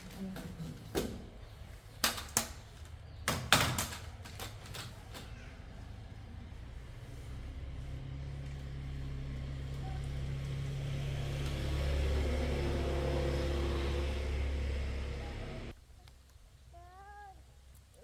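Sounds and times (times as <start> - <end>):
motor engine running: 5.6 - 15.7.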